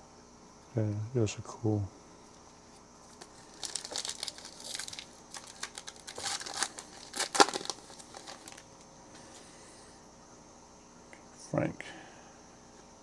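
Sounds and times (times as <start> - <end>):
foil wrapper crinkling: 3.1 - 8.8.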